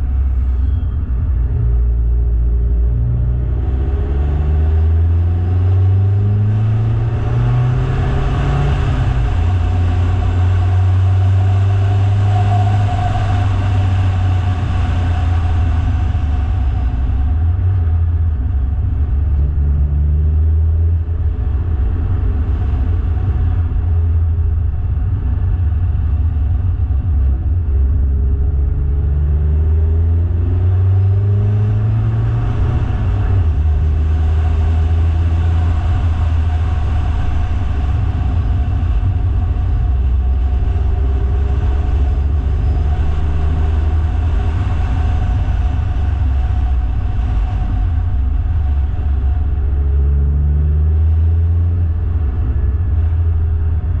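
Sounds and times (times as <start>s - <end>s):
car engine accelerating: 0.0s - 54.0s
rushing noise: 0.0s - 54.0s.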